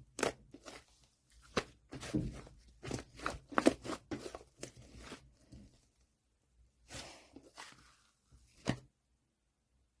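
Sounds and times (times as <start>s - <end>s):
slime squishing: 0.0s - 5.7s.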